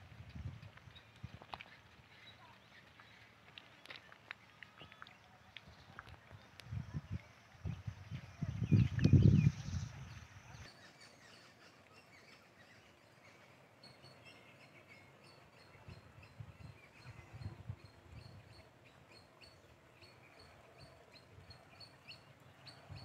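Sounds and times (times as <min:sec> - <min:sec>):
wind on microphone: 0:00.0 - 0:01.6, 0:05.6 - 0:10.7, 0:15.8 - 0:18.6
bird chirping: 0:00.8 - 0:23.0.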